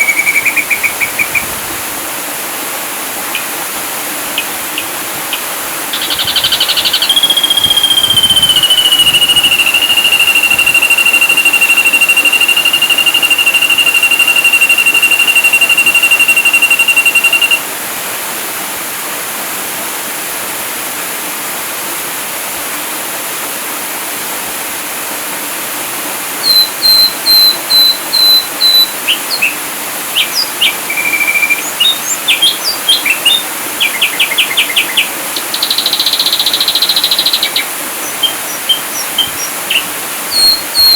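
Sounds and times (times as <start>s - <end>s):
bird song whistles and trills: 0.0s - 1.5s, 4.4s - 17.6s, 26.4s - 40.9s
steady hiss: 0.0s - 40.9s.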